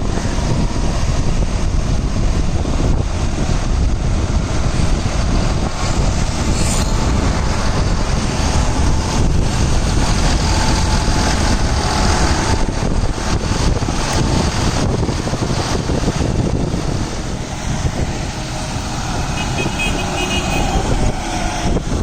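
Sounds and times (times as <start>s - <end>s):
tractor diesel engine running: 0.0s - 22.0s
faint whine: 6.0s - 8.9s.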